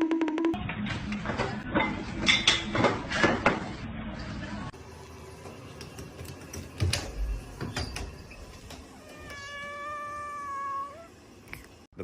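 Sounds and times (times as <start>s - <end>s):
cat meowing: 9.0s - 11.1s.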